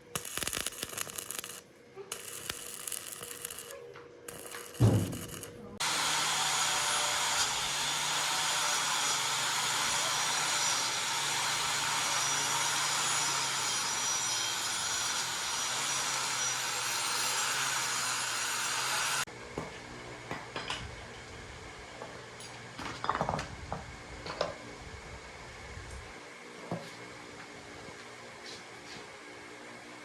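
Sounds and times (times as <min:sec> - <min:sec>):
electric power tool sanding: 0:04.3 - 0:19.3
thump: 0:04.8 - 0:05.6.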